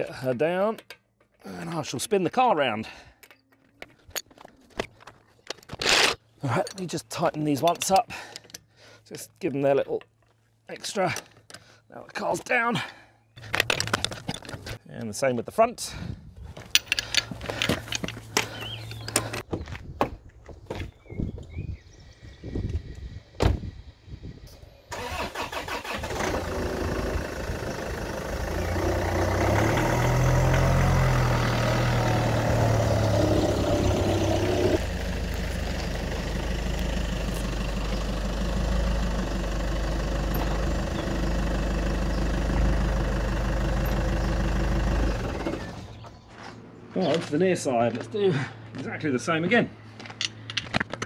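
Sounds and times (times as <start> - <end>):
car engine running: 26.1 - 46.0.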